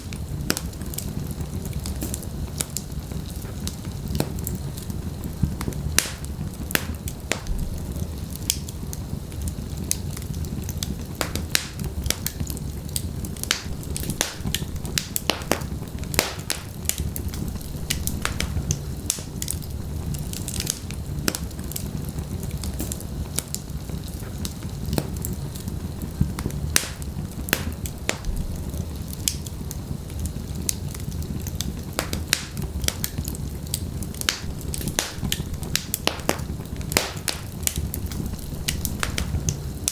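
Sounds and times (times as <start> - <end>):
low rumble of flames: 0.0 - 39.9
wood popping and snapping: 11.2 - 21.8, 32.0 - 39.9.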